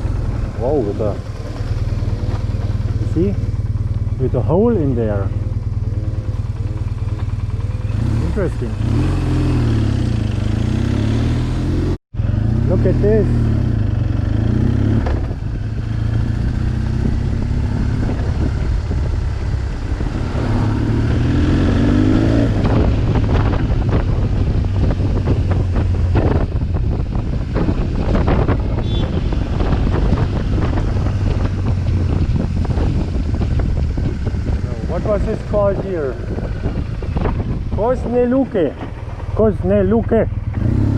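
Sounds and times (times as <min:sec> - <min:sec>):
motorcycle engine running: 0:00.0 - 0:40.9
wind buffeting microphone: 0:13.4 - 0:40.9.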